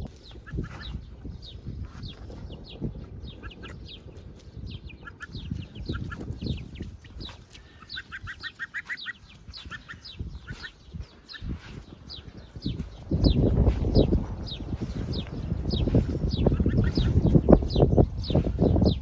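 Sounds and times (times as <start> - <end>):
gosling peeping: 0.0 - 19.0
low rumble: 12.1 - 19.0.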